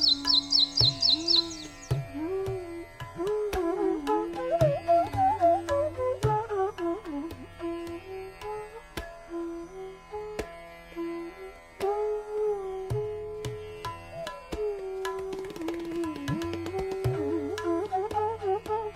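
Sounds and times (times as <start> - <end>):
flute playing ornamented melody: 0.0 - 8.0, 14.2 - 18.9
tabla: 0.0 - 18.9.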